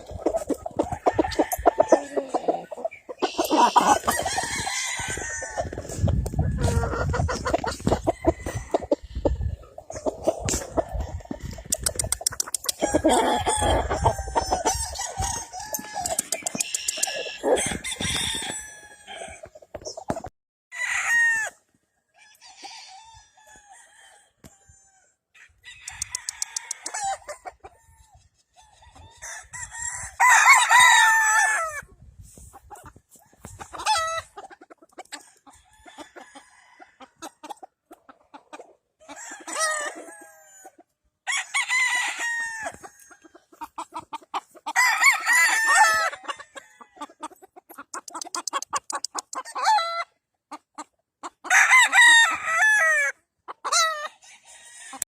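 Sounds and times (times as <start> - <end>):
chickens clucking: 0.0 - 18.4, 32.3 - 41.0, 42.7 - 44.7, 45.8 - 51.5, 53.3 - 54.1
roosters crowing: 0.0 - 19.6, 20.7 - 31.9, 35.1 - 37.4, 39.0 - 43.7, 44.5 - 47.3, 51.4 - 55.0.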